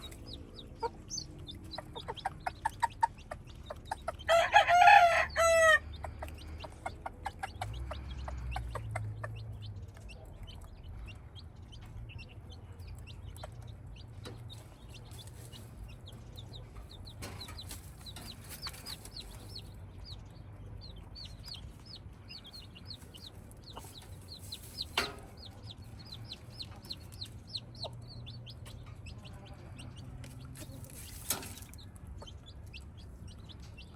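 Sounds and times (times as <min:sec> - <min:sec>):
chicken clucking: 0:00.0 - 0:33.9
rooster crowing: 0:04.3 - 0:05.8.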